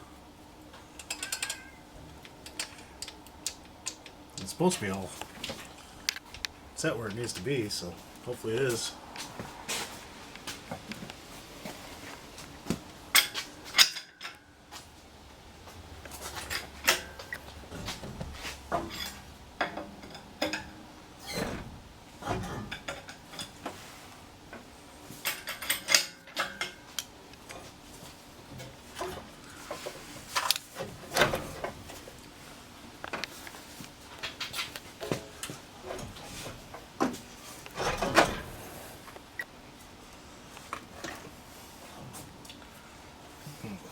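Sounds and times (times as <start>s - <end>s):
metal tools clinking and clanking: 1.0s - 1.8s, 13.1s - 14.5s, 16.2s - 17.4s, 18.7s - 21.6s, 25.2s - 27.7s.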